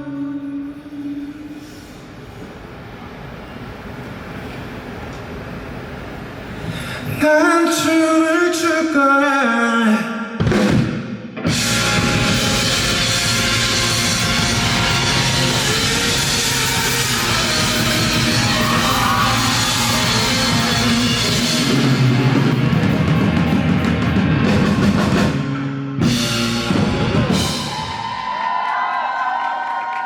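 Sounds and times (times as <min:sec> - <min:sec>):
rock band playing live: 0:10.4 - 0:28.2
crowd cheering: 0:11.6 - 0:25.4, 0:26.2 - 0:30.0.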